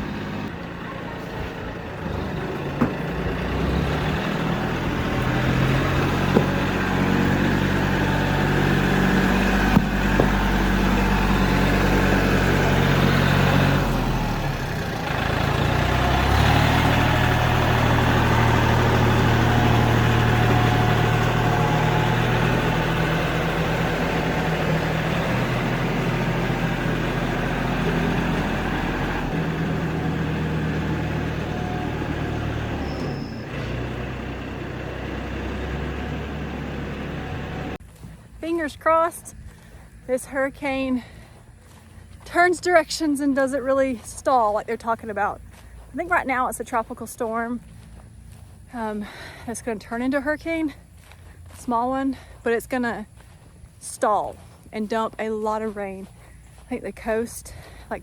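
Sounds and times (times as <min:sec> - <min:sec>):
tractor engine running: 0:00.0 - 0:58.0
sharp knocks: 0:06.1 - 0:06.7, 0:09.6 - 0:10.5.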